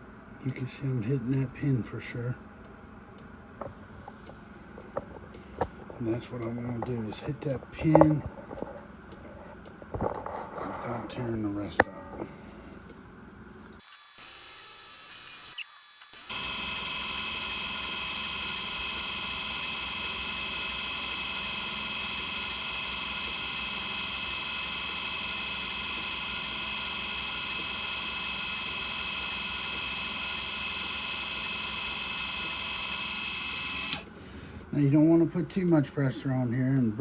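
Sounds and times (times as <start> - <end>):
drill press motor whining: 13.6 - 34.8.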